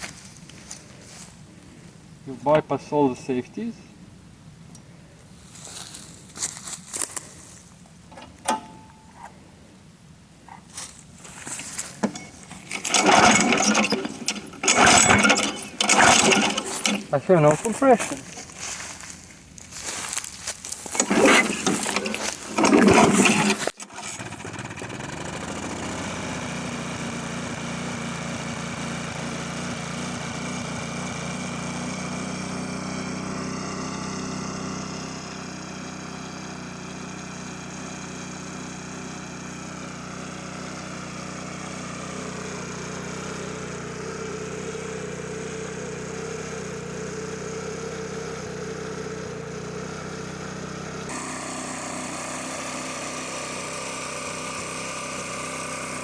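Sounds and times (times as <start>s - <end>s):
lawn mower engine running: 8.1s - 9.4s, 10.7s - 56.0s
starter cord rasp: 12.1s - 18.5s, 20.9s - 24.6s.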